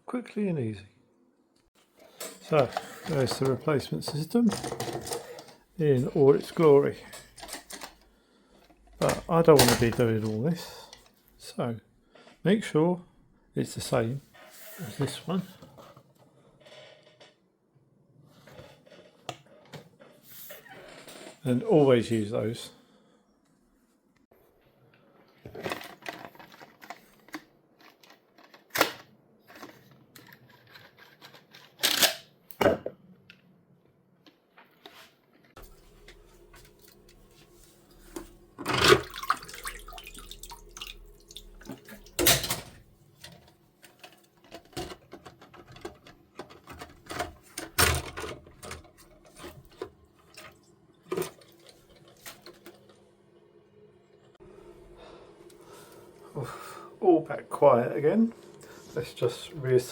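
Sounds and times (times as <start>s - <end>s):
water running into cistern: 36.5s - 42.8s, 49.3s - 52.8s.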